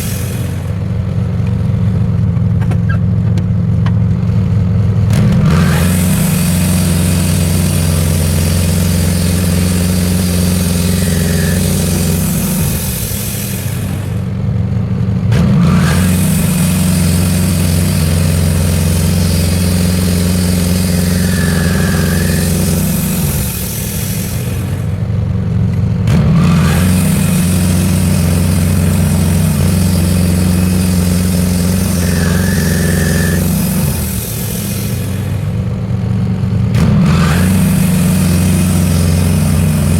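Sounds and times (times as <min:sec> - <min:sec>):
bandsaw sawing through log: 0:00.0 - 0:00.6, 0:05.4 - 0:14.3, 0:15.4 - 0:25.0, 0:26.1 - 0:35.6, 0:36.8 - 0:39.9.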